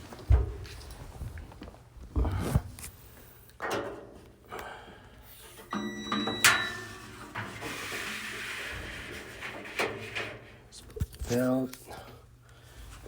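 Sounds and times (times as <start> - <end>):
knocks and scrapes of dryer parts: 0.0 - 1.4, 5.4 - 11.4
brief ringing tone: 5.7 - 7.3.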